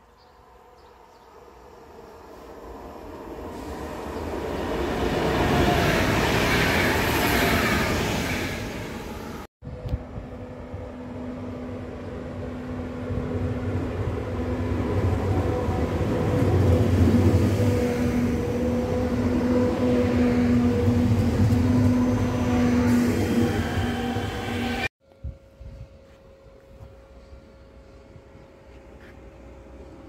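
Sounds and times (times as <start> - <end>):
train wheels rumbling on rails: 10.6 - 24.9.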